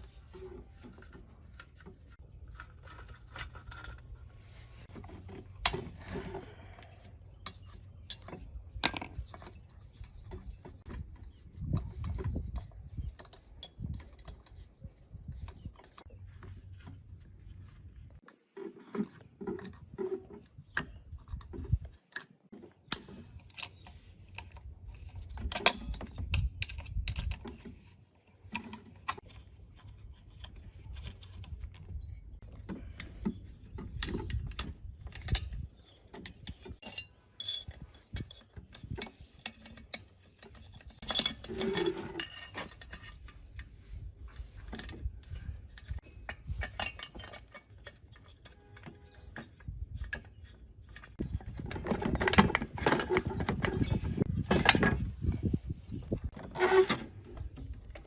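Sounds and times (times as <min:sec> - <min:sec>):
metal tools clinking and scraping: 0:00.0 - 0:58.0.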